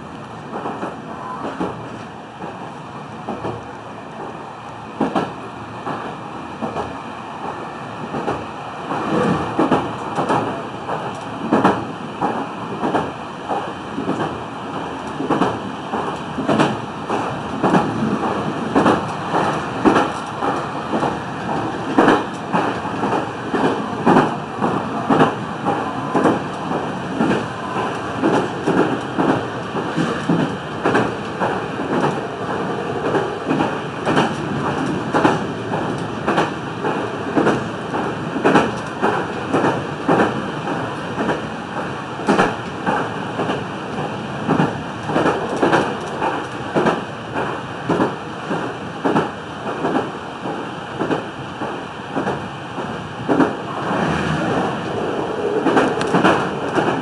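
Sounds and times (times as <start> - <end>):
train wheels rumbling on rail: 0.0 - 57.0
wheels clacking on rail joints: 8.1 - 57.0.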